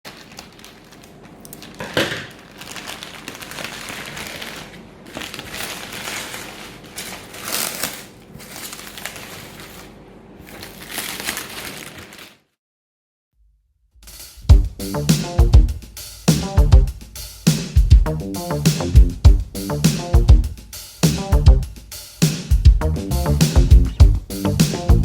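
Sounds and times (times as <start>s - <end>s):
packaging crinkling: 0.1s - 12.5s.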